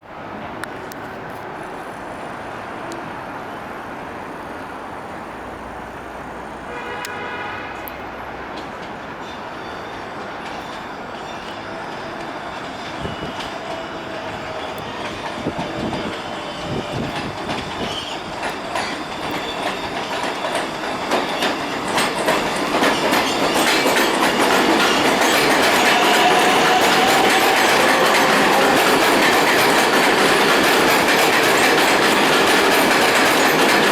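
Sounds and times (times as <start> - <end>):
subway train passing: 0.0 - 33.9
wheels clattering over rail joints: 8.5 - 33.9.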